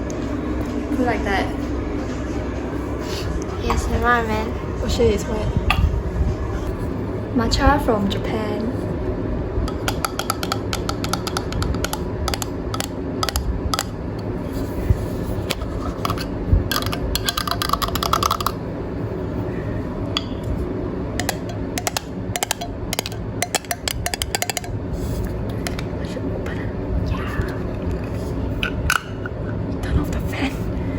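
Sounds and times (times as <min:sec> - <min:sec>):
fan humming: 0:00.0 - 0:30.9
clicks and taps of packaging: 0:09.7 - 0:13.9.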